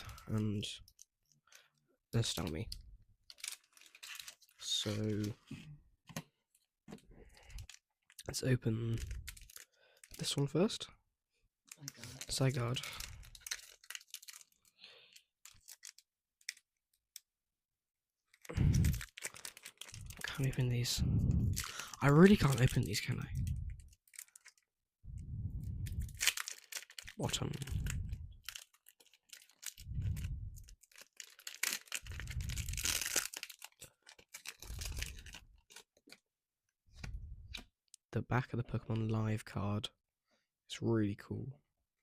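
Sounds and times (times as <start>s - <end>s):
foil pack crinkling and clicking: 3.3s - 5.3s, 11.7s - 17.3s, 18.3s - 20.5s, 23.8s - 24.7s, 26.2s - 29.8s, 30.6s - 36.2s.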